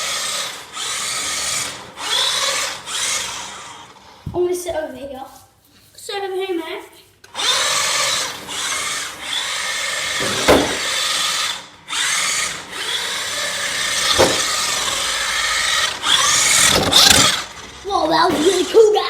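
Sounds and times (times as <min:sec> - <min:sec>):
toy car electric motor whining: 0:00.0 - 0:04.3, 0:07.2 - 0:19.0
sharp knocks: 0:10.2 - 0:10.9, 0:14.1 - 0:14.6.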